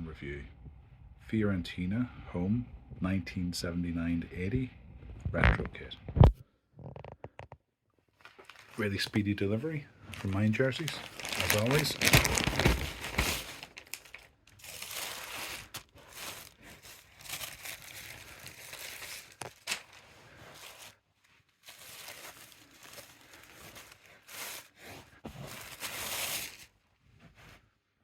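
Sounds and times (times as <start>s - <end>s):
packaging crinkling and rustling: 8.1s - 9.1s, 10.1s - 26.8s
sharp crackle of packaging: 10.1s - 26.7s.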